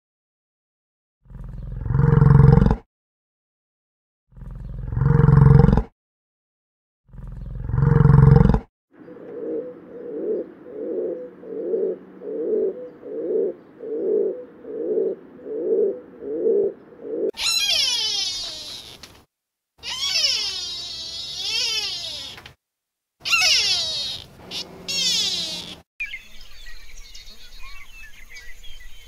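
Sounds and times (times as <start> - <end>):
pigeons cooing: 9.0 - 17.3
high-pitched animal calls: 15.5 - 19.2, 19.8 - 22.5, 23.2 - 25.8.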